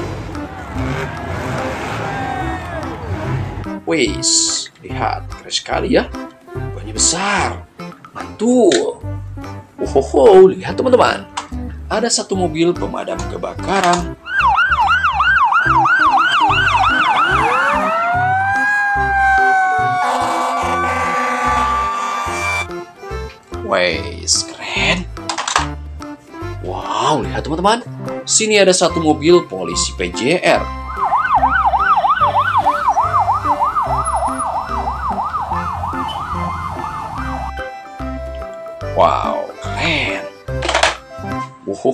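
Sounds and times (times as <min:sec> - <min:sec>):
siren wail: 0:00.1 - 0:03.8, 0:14.2 - 0:22.7, 0:30.6 - 0:37.7
siren yelp: 0:14.2 - 0:22.7, 0:30.6 - 0:37.7.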